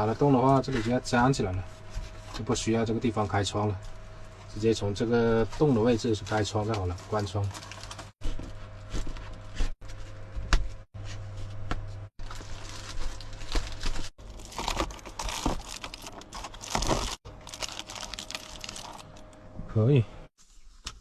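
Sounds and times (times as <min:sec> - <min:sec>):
materials crinkling and rustling: 0:05.4 - 0:19.4.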